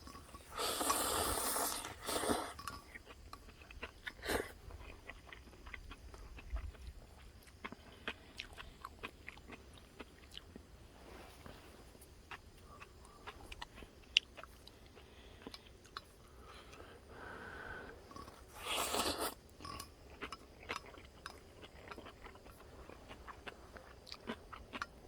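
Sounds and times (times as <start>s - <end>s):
person chewing crunchy food: 0.0s - 25.0s.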